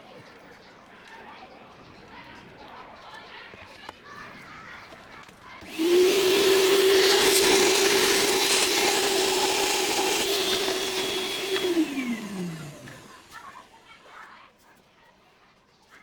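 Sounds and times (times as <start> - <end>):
small electric motor spinning: 5.6 - 13.8.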